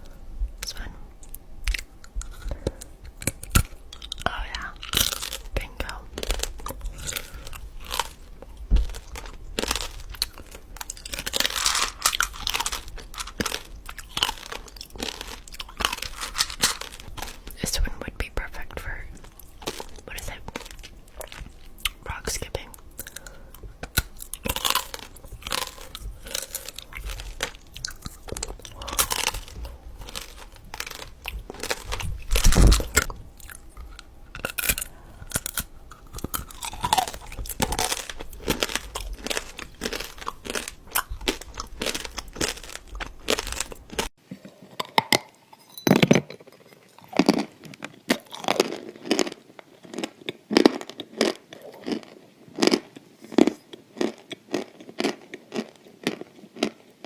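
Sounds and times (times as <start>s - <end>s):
background hum: 0.0s - 44.2s
crunchy food being chewed: 0.0s - 57.0s.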